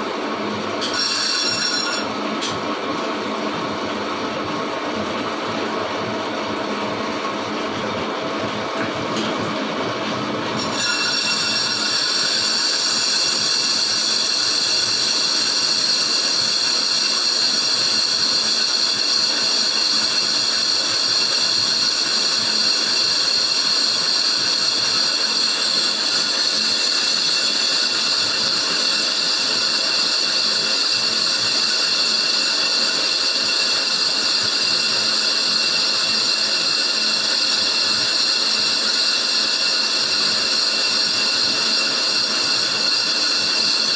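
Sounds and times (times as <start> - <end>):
lathe tool squealing on brake disc: 0.8 - 2.1, 10.6 - 43.9.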